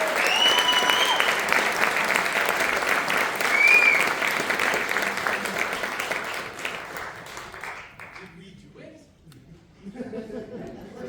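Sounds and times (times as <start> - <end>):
audience clapping: 0.0 - 8.4.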